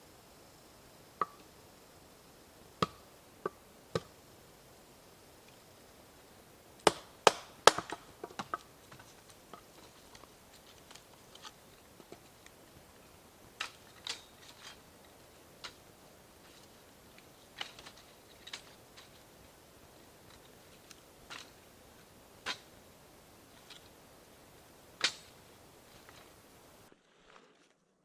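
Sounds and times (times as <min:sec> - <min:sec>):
sharp knocks and clicks: 0:06.9 - 0:08.6.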